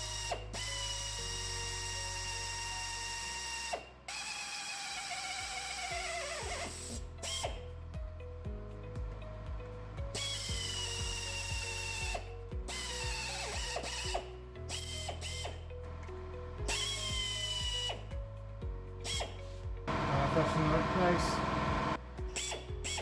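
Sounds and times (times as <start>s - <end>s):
power drill whining: 0.0s - 7.5s, 10.2s - 15.6s, 19.9s - 23.0s
background music with steady beat: 0.0s - 23.0s.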